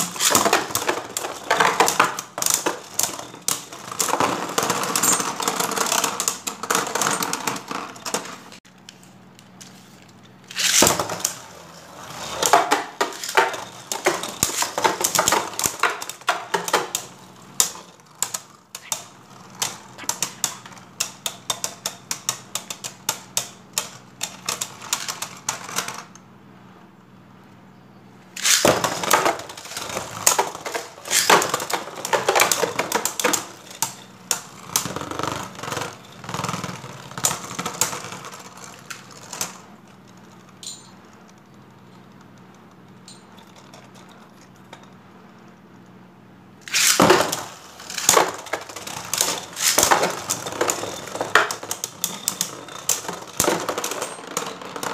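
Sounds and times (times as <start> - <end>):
spinning tops clashing: 0.0 - 8.6, 10.4 - 11.5, 12.3 - 23.4, 28.4 - 39.7, 46.6 - 54.9
loud plastic clatter: 0.0 - 8.8, 9.5 - 26.2, 28.3 - 45.0, 46.6 - 54.9
tops spinning: 0.0 - 26.2, 28.3 - 45.9, 46.6 - 54.9.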